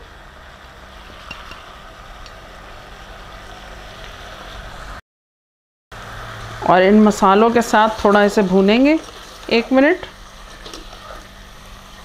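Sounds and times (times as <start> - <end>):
chicken frying in oil: 6.0 - 12.0.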